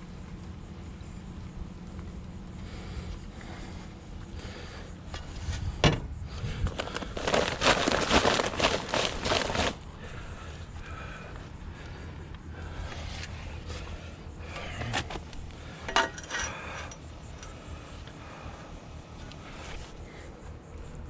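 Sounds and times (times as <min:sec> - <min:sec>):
dry material pouring into hole: 0:06.8 - 0:09.8.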